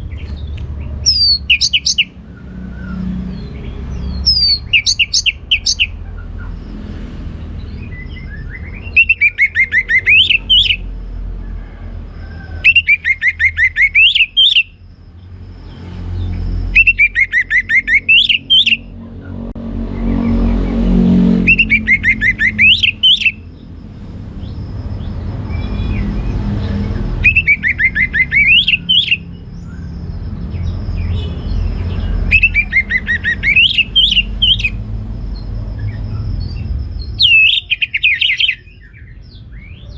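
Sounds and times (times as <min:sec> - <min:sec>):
thrush singing whistled phrases: 0:01.0 - 0:06.4, 0:07.7 - 0:10.9, 0:12.6 - 0:14.9, 0:15.5 - 0:18.9, 0:21.4 - 0:23.6, 0:27.1 - 0:39.3.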